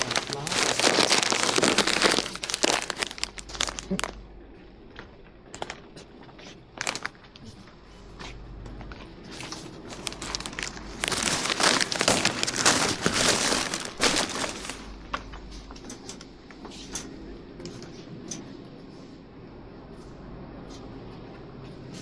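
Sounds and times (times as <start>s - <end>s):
plastic crinkling: 0.0s - 4.1s, 6.8s - 7.2s, 9.3s - 14.9s.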